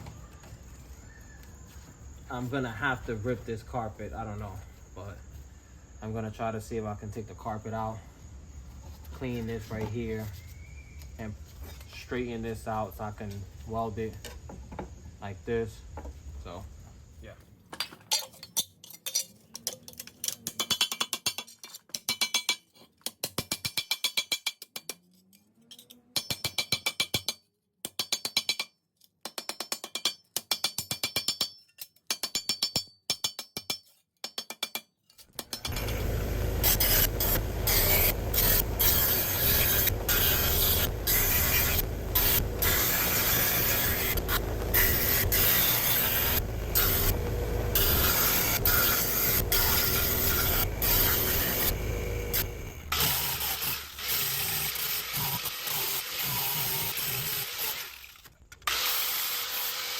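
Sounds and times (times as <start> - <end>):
loud rasping noise: 35.4 - 58.0.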